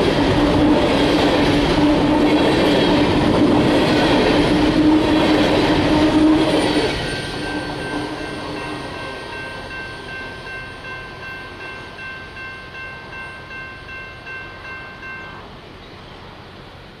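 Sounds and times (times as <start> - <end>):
freight train passing: 0.0 - 17.0.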